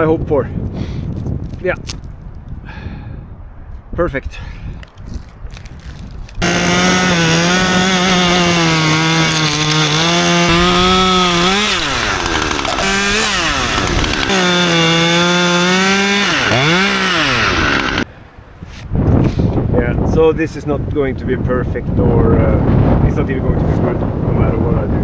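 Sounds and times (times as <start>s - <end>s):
chainsaw cutting wood: 6.4s - 18.1s.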